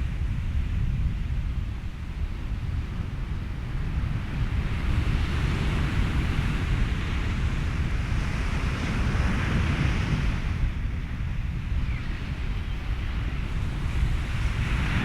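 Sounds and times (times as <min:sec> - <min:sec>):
wind: 0:00.0 - 0:15.0
ocean surf: 0:01.9 - 0:15.0.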